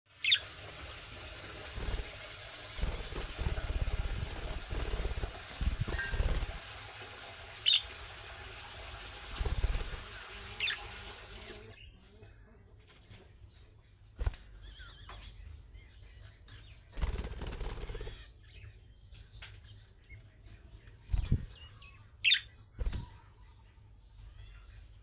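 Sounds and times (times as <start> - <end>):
budgerigar chirps: 22.2 - 22.5.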